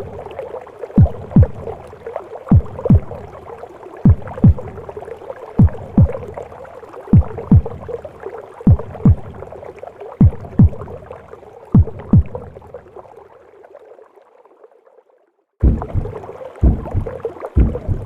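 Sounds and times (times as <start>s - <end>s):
heartbeat thumps: 1.0s - 1.8s, 2.5s - 3.3s, 4.0s - 4.9s, 5.6s - 6.4s, 7.1s - 8.0s, 8.7s - 9.5s, 10.2s - 11.0s, 11.7s - 12.6s, 15.6s - 18.0s.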